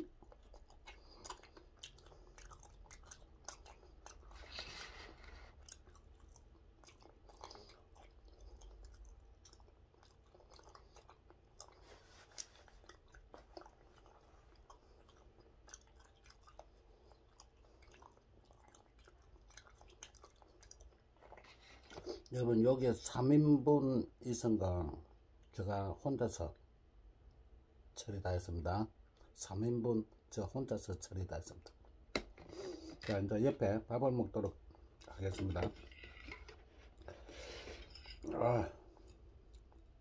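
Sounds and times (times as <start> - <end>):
faint chewing: 0.0 - 22.4, 34.3 - 40.0.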